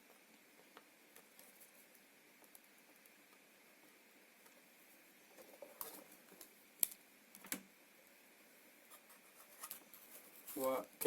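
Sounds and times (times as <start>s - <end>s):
circuit board handling rustle: 8.9s - 11.0s.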